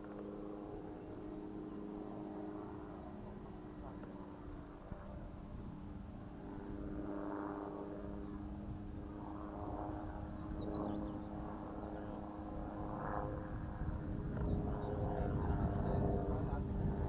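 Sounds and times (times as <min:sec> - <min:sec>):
model airplane motor humming: 0:00.0 - 0:17.0
wind rumble on microphone: 0:08.0 - 0:17.0.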